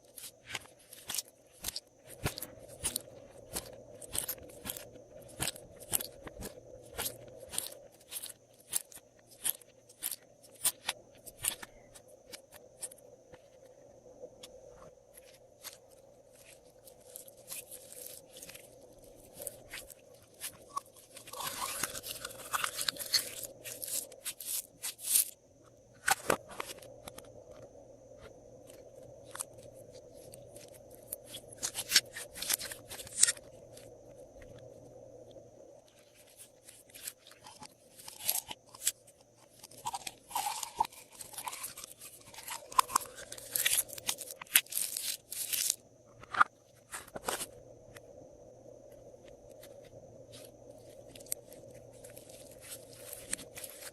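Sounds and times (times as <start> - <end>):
slime crackling and popping: 0.0 - 13.0, 15.6 - 25.4, 30.2 - 33.9, 36.2 - 45.8, 51.1 - 53.9
slime squelching: 0.0 - 13.0, 15.2 - 25.4, 29.2 - 33.9, 35.9 - 45.8, 50.3 - 53.9.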